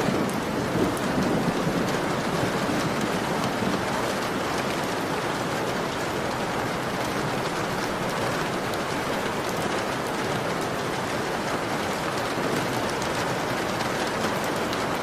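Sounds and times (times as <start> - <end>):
heavy rain on a window: 0.0 - 15.0.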